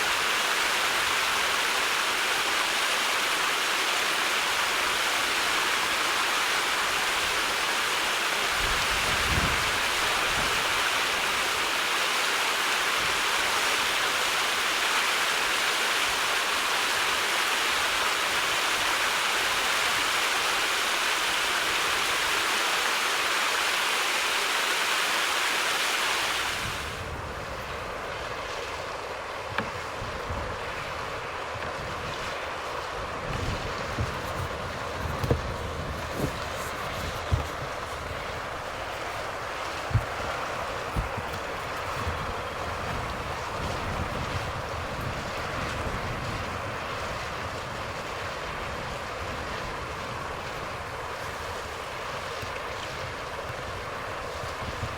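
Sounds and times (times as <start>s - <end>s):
rushing flowing water: 0.0s - 54.9s
wind gusts on microphone: 8.4s - 11.6s, 29.5s - 54.9s.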